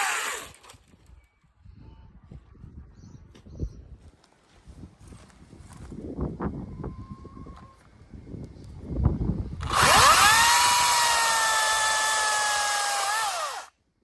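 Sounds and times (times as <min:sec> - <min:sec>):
battery chainsaw whining: 0:00.0 - 0:00.7, 0:09.6 - 0:13.7.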